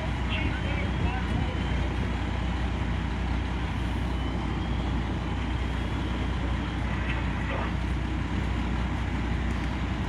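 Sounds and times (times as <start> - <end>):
heavy truck engine running: 0.0 - 10.0
outdoor noise: 0.0 - 10.0.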